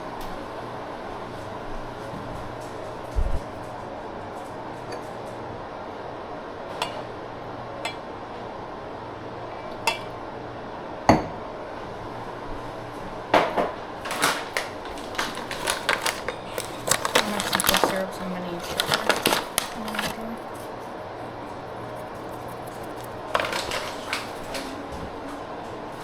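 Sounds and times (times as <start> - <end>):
dishes and utensils clattering: 15.1 - 20.7, 21.4 - 25.4.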